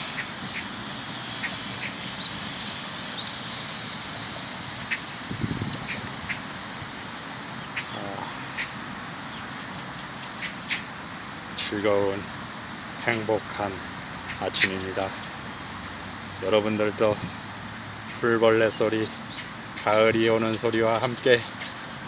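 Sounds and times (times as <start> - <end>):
bird chirps: 0.0 - 6.4
crickets trilling: 0.0 - 22.0.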